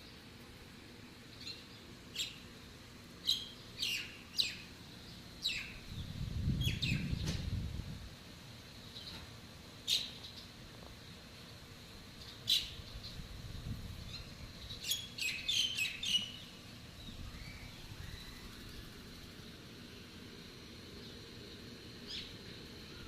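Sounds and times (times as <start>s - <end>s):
birds chirping: 3.2s - 7.4s, 8.8s - 13.3s, 14.0s - 20.2s.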